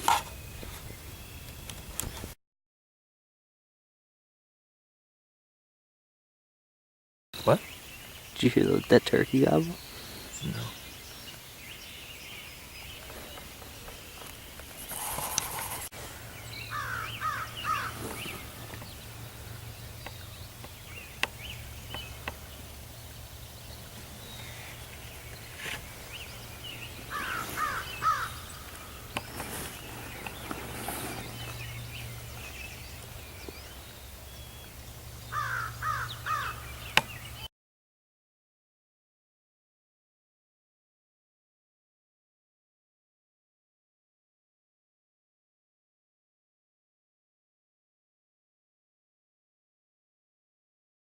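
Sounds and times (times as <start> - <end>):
crow cawing: 16.7 - 18.0, 27.1 - 28.6, 35.3 - 36.7.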